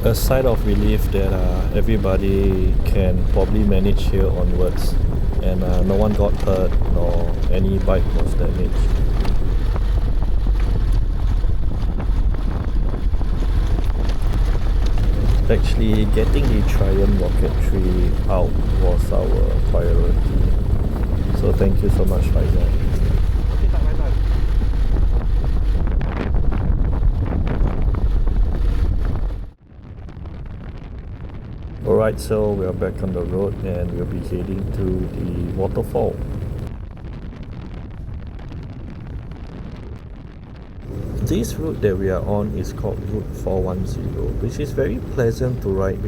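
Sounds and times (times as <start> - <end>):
steady rush: 0.0 - 29.6, 40.8 - 46.0
heavy low rumble: 0.0 - 46.0
wind buffeting microphone: 0.0 - 46.0.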